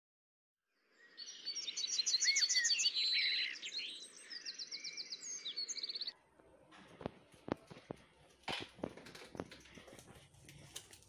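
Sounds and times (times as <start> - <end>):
birds chirping and trilling: 0.8 - 6.2.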